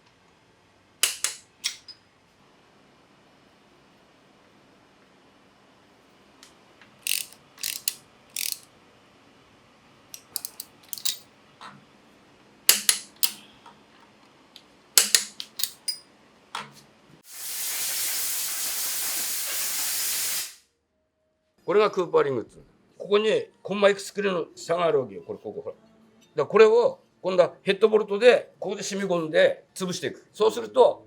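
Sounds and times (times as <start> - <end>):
clinks of hand tools and parts: 1.0 - 2.0, 10.2 - 11.8, 12.7 - 13.5, 15.0 - 16.7
loud hiss of air: 17.2 - 20.7.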